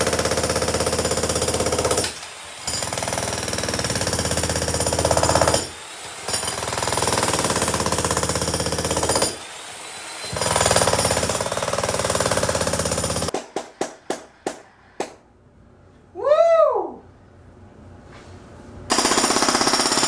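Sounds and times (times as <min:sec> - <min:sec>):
jackhammer pounding concrete: 0:00.0 - 0:09.4, 0:10.3 - 0:13.3, 0:18.9 - 0:20.0.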